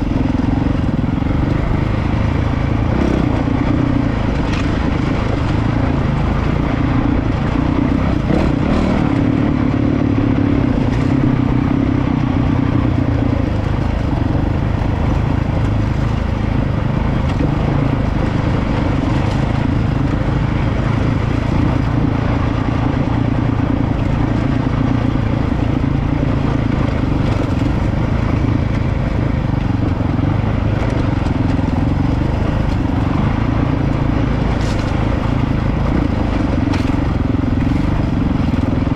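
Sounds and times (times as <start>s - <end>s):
motorcycle engine running: 0.0s - 38.9s
faint ticks and clatter: 26.3s - 38.6s.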